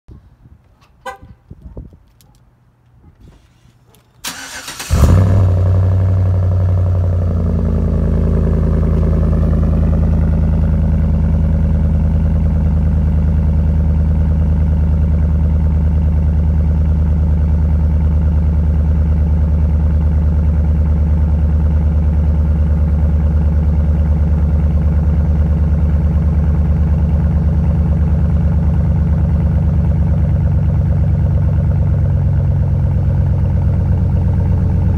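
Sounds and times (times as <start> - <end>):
engine cranking: 3.2 - 5.4
engine idling: 3.2 - 34.9.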